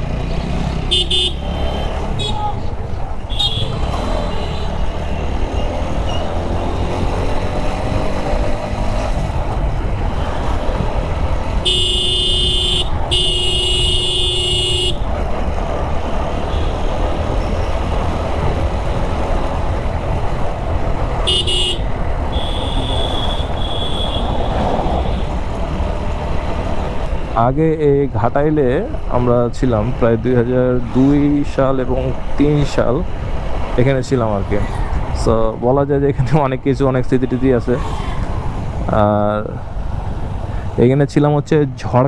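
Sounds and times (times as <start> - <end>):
motorcycle riding: 0.0 - 36.0, 36.8 - 41.0
vehicle horns honking: 0.9 - 5.3, 11.5 - 15.2, 16.3 - 17.8, 21.2 - 25.6.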